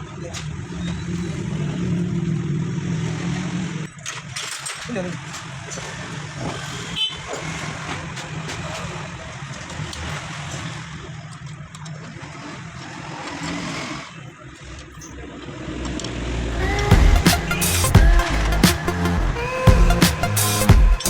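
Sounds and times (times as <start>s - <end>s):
motorcycle engine idling: 16.5s - 21.0s.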